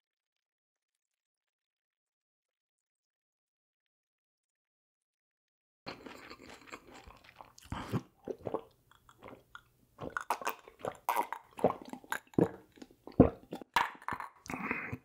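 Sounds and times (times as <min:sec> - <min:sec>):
chewing and crunching food: 0:05.9 - 0:15.0.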